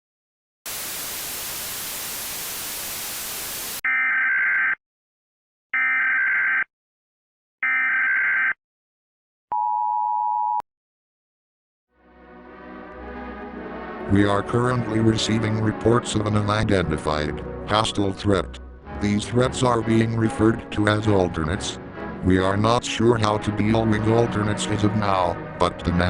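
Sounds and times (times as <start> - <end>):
tv static hiss: 0.7 - 3.8.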